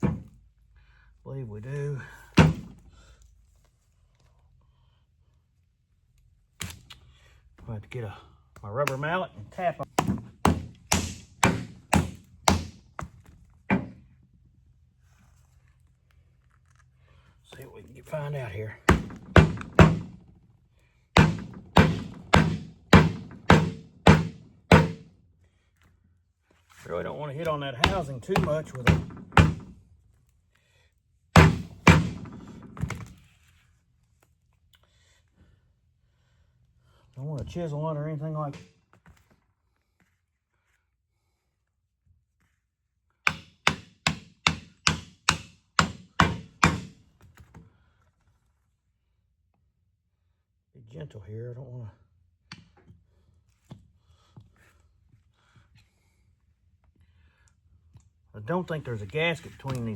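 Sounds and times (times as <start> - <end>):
rubber mallet striking metal housing: 21.2 - 25.0, 31.4 - 32.4.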